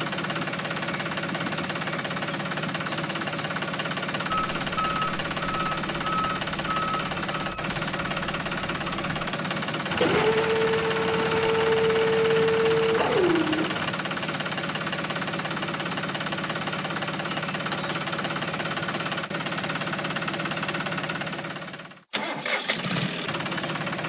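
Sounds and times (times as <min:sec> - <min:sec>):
small engine running: 0:00.0 - 0:24.0
steady held tone: 0:04.3 - 0:14.1.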